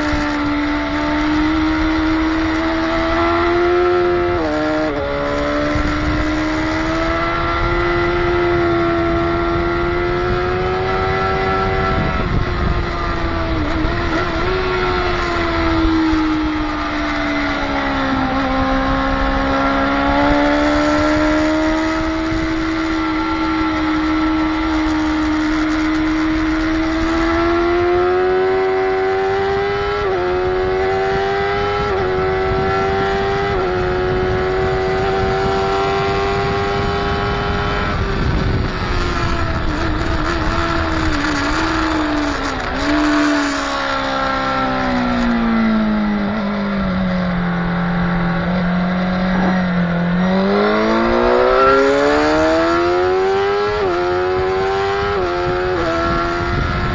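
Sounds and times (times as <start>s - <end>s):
motorcycle engine pulling hard: 0.0s - 56.9s.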